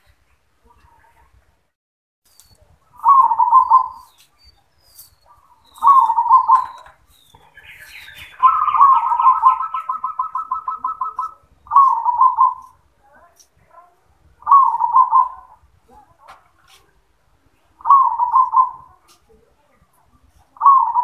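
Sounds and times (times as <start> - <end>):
faint high chirps: 2.3 - 12.8
dove cooing: 3.0 - 4.1, 5.4 - 12.8, 14.4 - 15.6, 17.8 - 19.2, 20.6 - 21.0.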